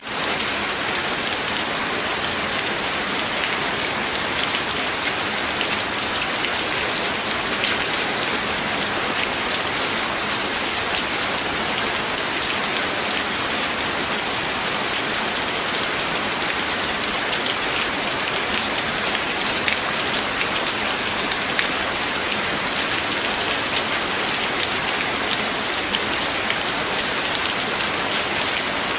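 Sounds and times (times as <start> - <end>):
loud rain: 0.0 - 28.9.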